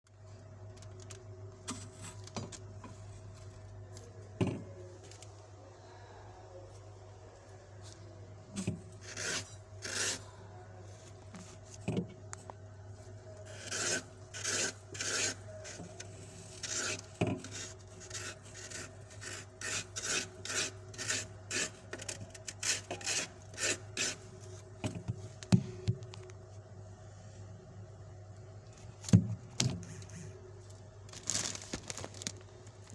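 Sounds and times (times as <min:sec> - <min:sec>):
low appliance hum: 0:00.0 - 0:32.9
knife scraping frost: 0:08.9 - 0:10.4, 0:13.4 - 0:24.3.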